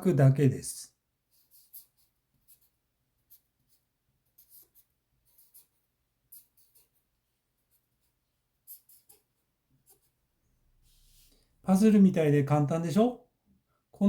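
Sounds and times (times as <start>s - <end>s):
pen scratching handwriting: 1.3s - 10.2s.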